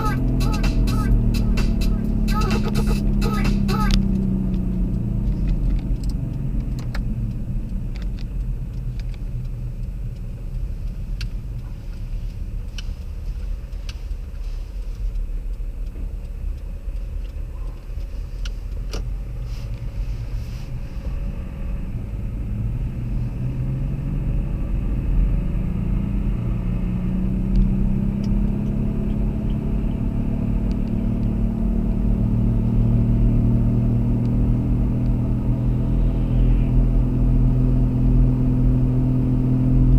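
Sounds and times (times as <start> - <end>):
car engine: 0.0 - 39.9
road rumble: 0.0 - 39.9.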